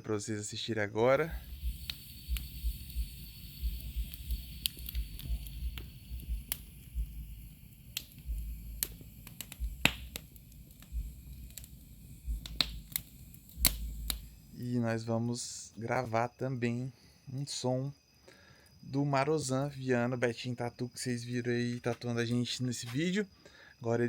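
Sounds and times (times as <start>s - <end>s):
bonfire crackling and popping: 1.1s - 14.6s.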